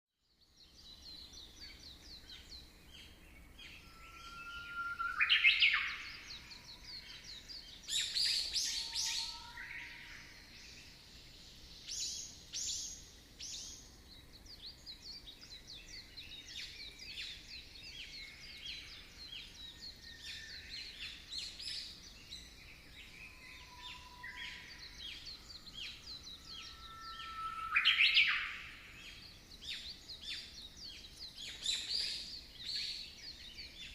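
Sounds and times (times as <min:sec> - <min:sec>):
birds chirping and singing: 0:00.4 - 0:33.9
rising bird whistle: 0:03.7 - 0:06.6, 0:25.9 - 0:28.8.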